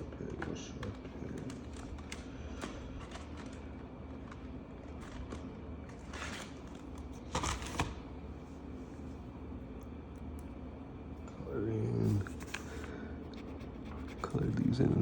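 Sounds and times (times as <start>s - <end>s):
steady low hum: 0.0s - 15.0s
marker scratching on paper: 12.0s - 15.0s.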